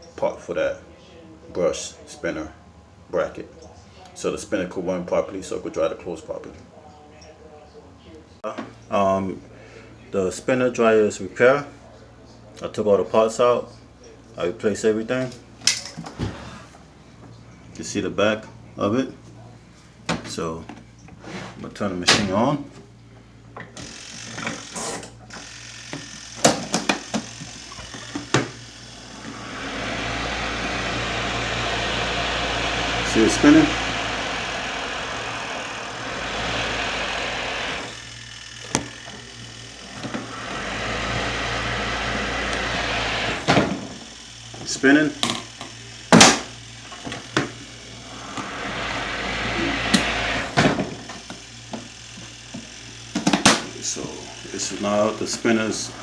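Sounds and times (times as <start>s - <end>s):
spin dryer motor running: 23.8s - 56.0s.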